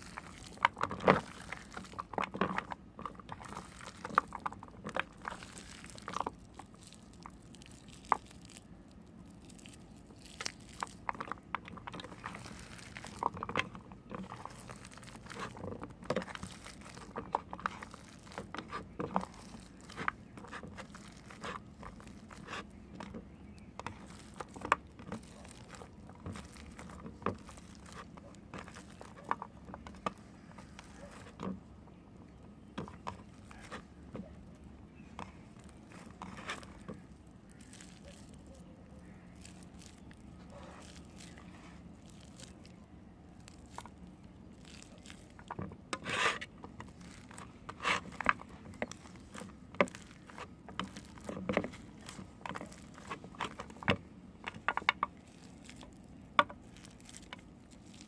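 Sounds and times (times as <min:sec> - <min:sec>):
knife carving soap: 0:10.0 - 0:31.6, 0:43.4 - 0:58.0.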